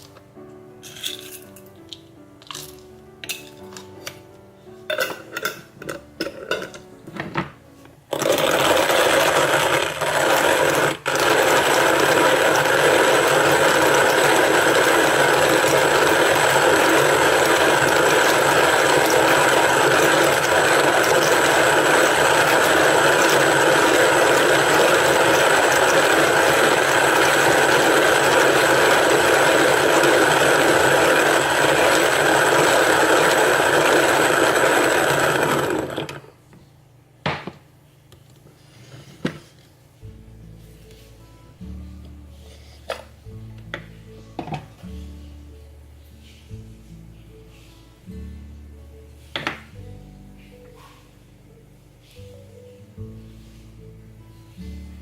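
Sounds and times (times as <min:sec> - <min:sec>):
coffee grinder grinding beans: 0:08.1 - 0:36.3.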